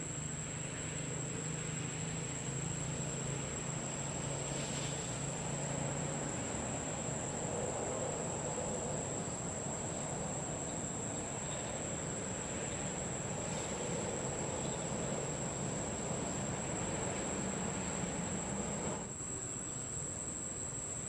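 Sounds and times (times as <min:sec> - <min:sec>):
insects droning: 0:00.0 - 0:21.0
steady rushing noise: 0:13.3 - 0:19.1.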